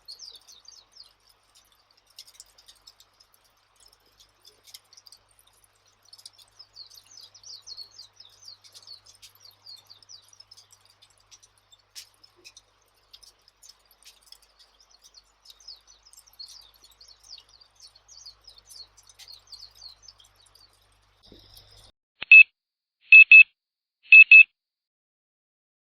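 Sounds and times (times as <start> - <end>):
faint high twittering chirps: 0.0 - 21.9
electronic timer beeping: 22.2 - 22.5, 23.1 - 23.5, 24.1 - 24.5.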